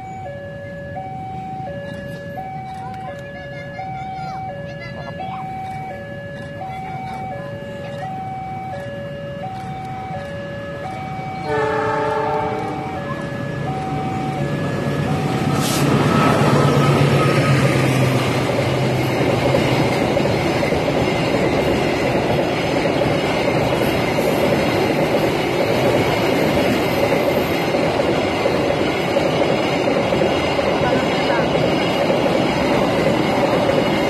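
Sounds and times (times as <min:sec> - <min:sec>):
freight train wheels rumbling: 0:00.0 - 0:34.0
locomotive engine droning: 0:00.0 - 0:34.0
locomotive horn: 0:11.4 - 0:13.6.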